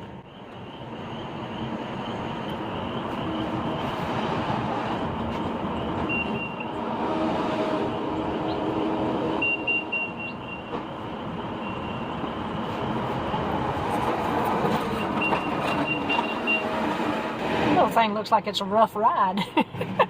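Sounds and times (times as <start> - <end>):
reversing alarm beeps: 5.7 - 6.8, 9.3 - 13.0, 14.9 - 16.8.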